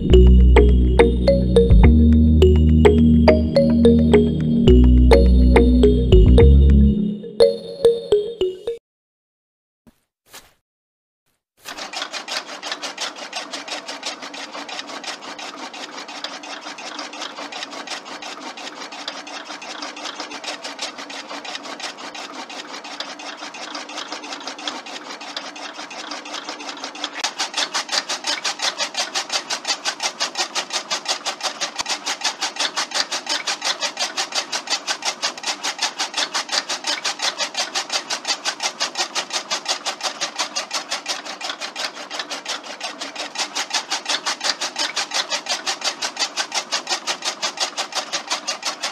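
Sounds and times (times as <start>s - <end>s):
small electric motor clattering: 11.6s - 48.9s.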